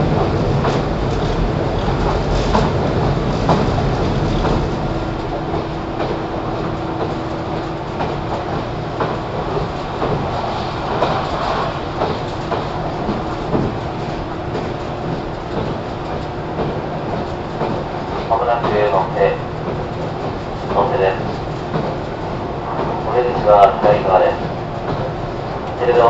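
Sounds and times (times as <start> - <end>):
train wheels rumbling on rail: 0.0 - 26.0
wheels clacking over rail joints: 0.0 - 26.0.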